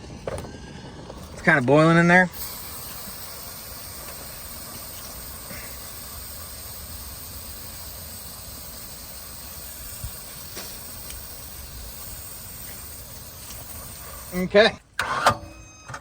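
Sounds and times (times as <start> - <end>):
low rumble: 0.0 - 3.0
hissing from overheated engine: 0.0 - 14.7.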